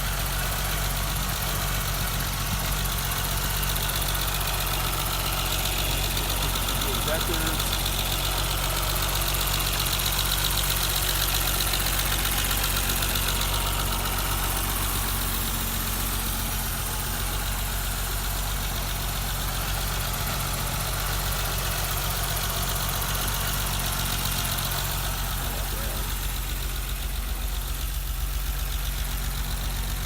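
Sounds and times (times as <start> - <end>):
car engine idling: 0.0 - 30.0
fuel injectors clicking: 3.7 - 10.9.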